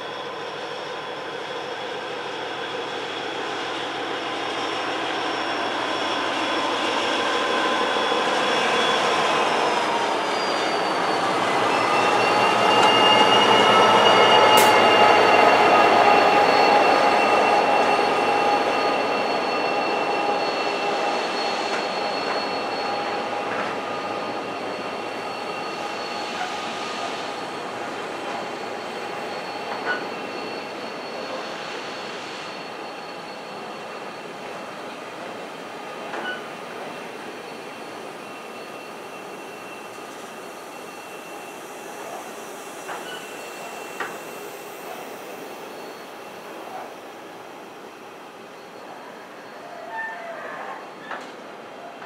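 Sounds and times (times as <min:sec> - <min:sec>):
freight train passing: 0:00.0 - 0:52.0
wheel squeal: 0:00.4 - 0:47.0, 0:47.8 - 0:52.0.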